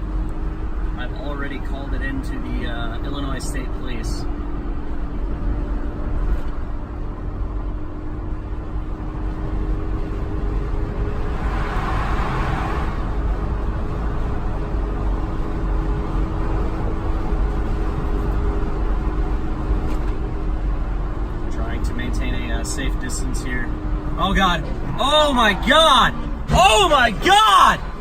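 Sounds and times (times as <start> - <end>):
car road and engine rumble: 0.0 - 28.0
rushing noise: 11.2 - 13.0.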